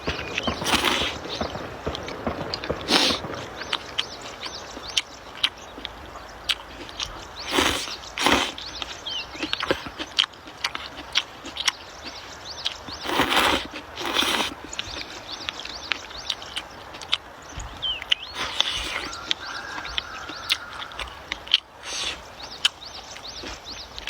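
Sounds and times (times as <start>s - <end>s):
wet chewing: 0.0s - 24.0s
noodle slurping: 0.6s - 1.2s, 6.8s - 8.8s, 12.9s - 15.2s, 18.2s - 19.2s
lip-smacking clicks: 14.1s - 23.8s.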